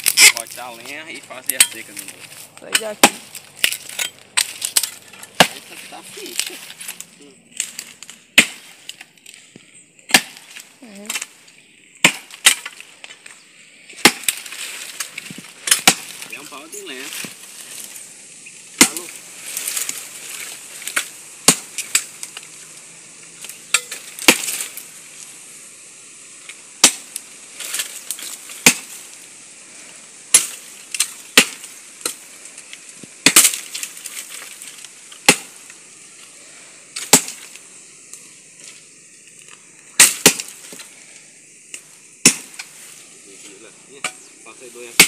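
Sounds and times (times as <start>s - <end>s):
blade chopping wood: 1.5s - 5.7s, 7.6s - 9.0s, 10.1s - 11.3s, 12.0s - 12.8s, 14.0s - 14.6s, 15.3s - 16.4s, 18.8s - 19.1s, 19.7s - 22.1s, 23.4s - 24.7s, 26.8s - 29.0s, 30.3s - 32.2s, 33.0s - 34.6s, 35.2s - 35.6s, 37.0s - 37.5s, 40.0s - 40.8s, 42.2s - 42.7s.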